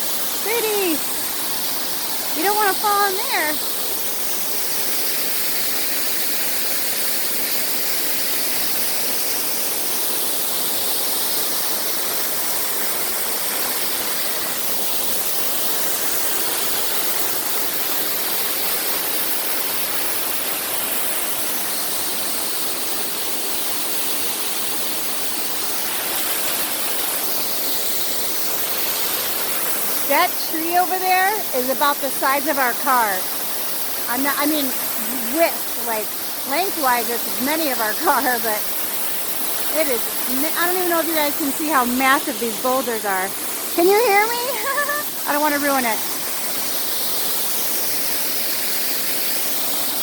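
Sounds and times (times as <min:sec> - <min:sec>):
waterfall roaring: 0:00.0 - 0:10.2, 0:23.3 - 0:50.0.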